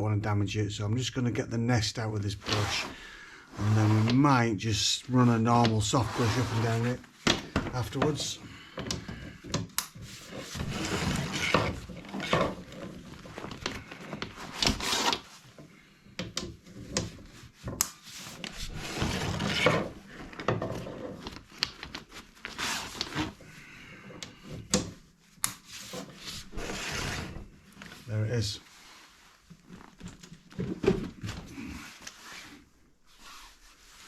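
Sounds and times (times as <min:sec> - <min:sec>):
brush scraping inside chimney flue: 0:02.4 - 0:07.0, 0:10.0 - 0:15.2, 0:16.8 - 0:20.4, 0:25.8 - 0:29.3.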